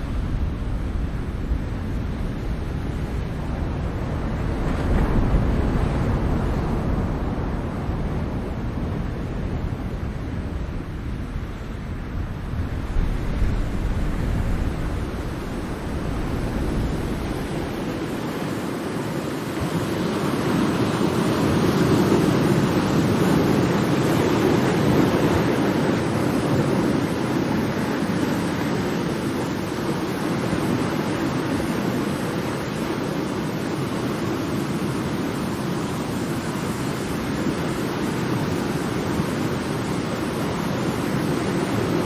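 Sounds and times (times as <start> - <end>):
ocean waves: 0.0 - 42.0.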